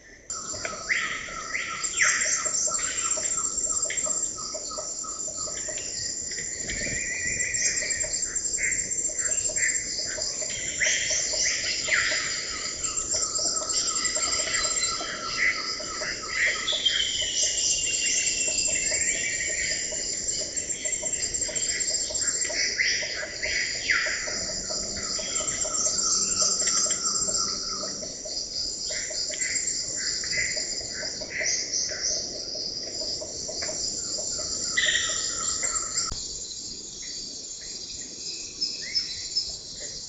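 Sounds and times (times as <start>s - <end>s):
insect chorus: 0.0s - 40.0s
bird calls and whistles: 16.4s - 20.1s.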